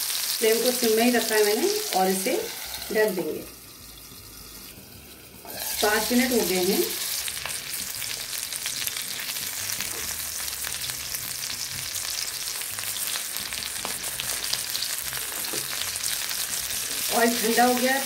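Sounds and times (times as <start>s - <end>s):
kebabs sizzling in oil: 0.0s - 18.0s.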